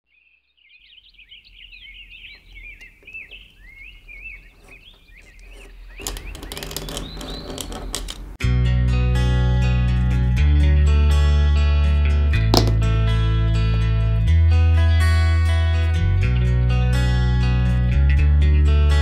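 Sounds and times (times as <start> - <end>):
birds chirping and twittering: 0.1 - 8.4
guitar music: 8.4 - 19.0.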